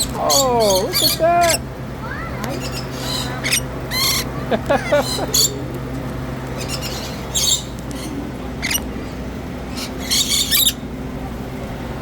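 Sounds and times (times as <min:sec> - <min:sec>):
birds calling in shrill bursts: 0:00.0 - 0:05.6, 0:06.5 - 0:08.9, 0:09.7 - 0:10.9
steady low hum: 0:00.0 - 0:12.0.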